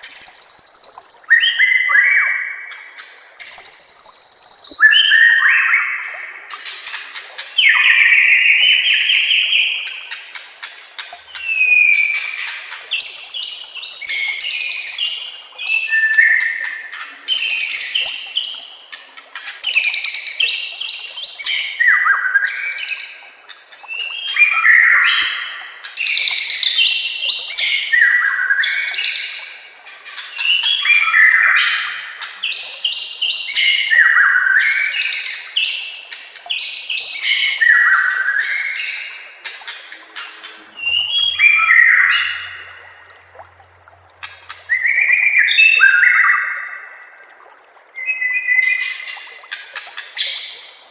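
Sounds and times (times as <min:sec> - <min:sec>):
bird singing whistled song: 0:00.0 - 0:02.7, 0:03.4 - 0:06.6, 0:07.6 - 0:09.9, 0:11.3 - 0:18.6, 0:32.5 - 0:35.8, 0:40.8 - 0:42.7, 0:44.7 - 0:46.8, 0:48.0 - 0:49.2.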